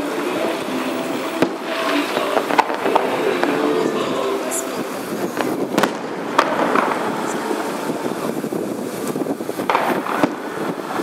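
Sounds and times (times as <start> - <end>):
fireworks bangs: 0.0 - 11.0
steady noisy background: 0.0 - 11.0.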